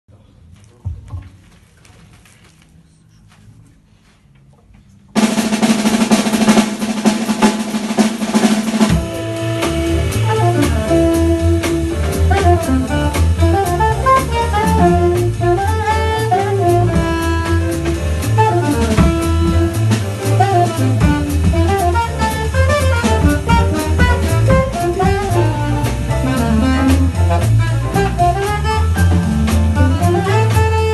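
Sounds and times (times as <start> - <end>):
drum roll and cymbals: 5.2 - 30.9
jazz band playing: 5.2 - 30.9.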